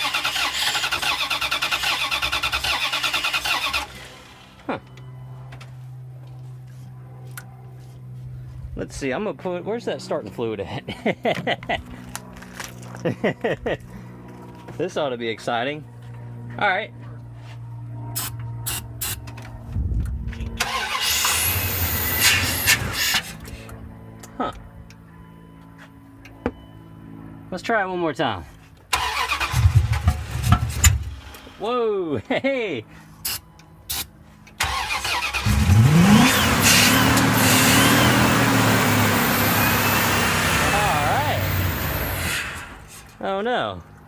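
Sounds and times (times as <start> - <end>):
starter cranking engine: 0.0 - 4.4, 20.6 - 23.3, 28.9 - 31.4, 34.6 - 42.9
engine rough rumble: 0.0 - 26.9, 28.5 - 31.7, 32.9 - 44.0.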